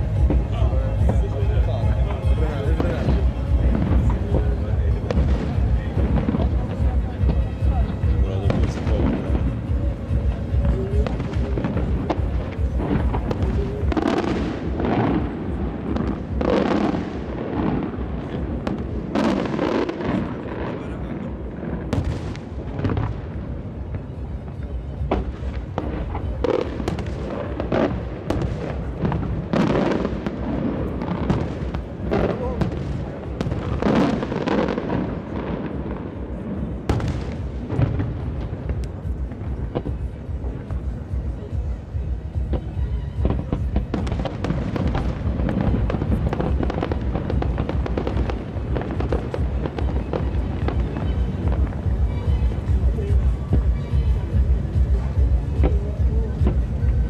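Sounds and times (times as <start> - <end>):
deep booming: 0.0 - 20.8
fireworks bangs and booms: 0.0 - 57.0
low rumble of distant reports: 0.0 - 57.0.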